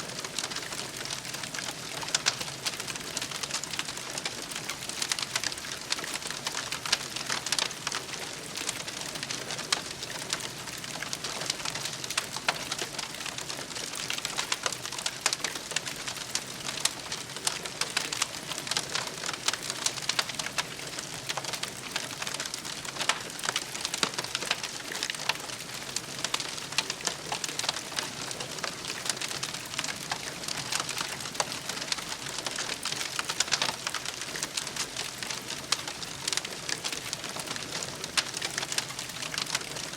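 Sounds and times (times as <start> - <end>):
campfire crackling and popping: 0.1 - 39.9.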